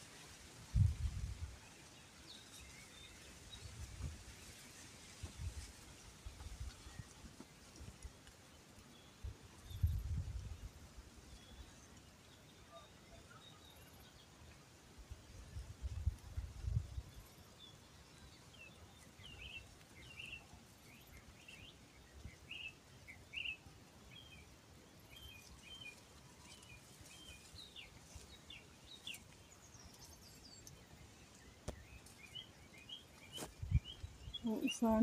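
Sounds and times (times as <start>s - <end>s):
birds chirping faintly: 16.6s - 35.0s.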